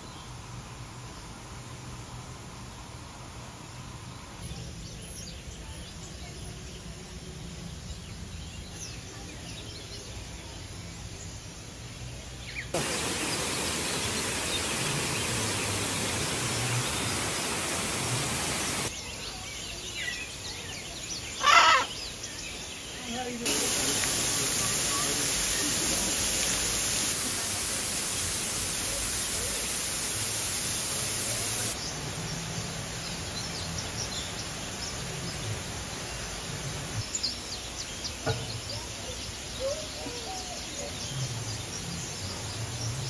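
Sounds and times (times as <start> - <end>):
steady hiss: 8.8 - 19.4, 20.2 - 40.0
loud harsh bird call: 21.4 - 22.0.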